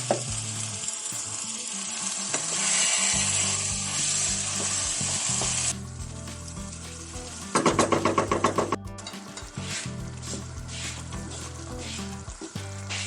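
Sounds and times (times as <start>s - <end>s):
rapid rattling clatter: 3.1s - 13.0s.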